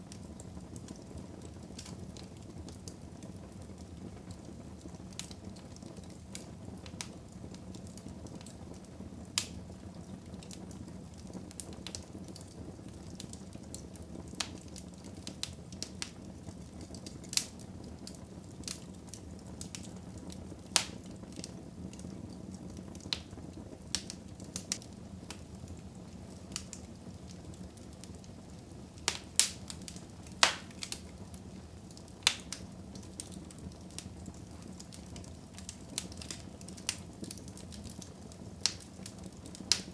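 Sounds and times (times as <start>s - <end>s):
logs crackling and popping: 0.0s - 39.9s
fire hissing: 16.8s - 39.9s.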